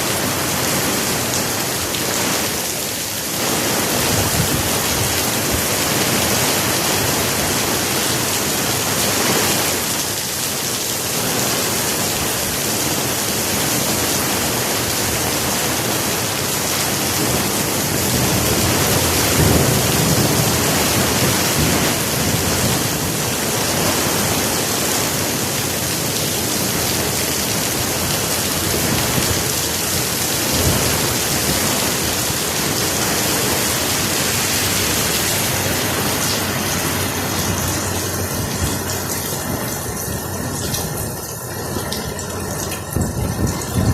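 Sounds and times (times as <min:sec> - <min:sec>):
heavy rain hissing: 0:00.0 - 0:43.9.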